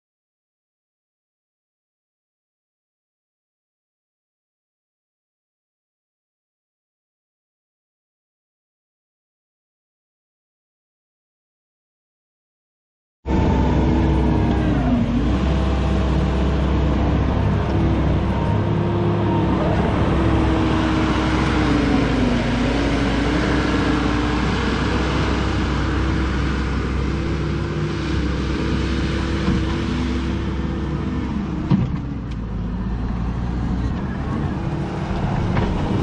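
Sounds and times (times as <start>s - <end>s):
track loader diesel engine: 13.3s - 36.0s.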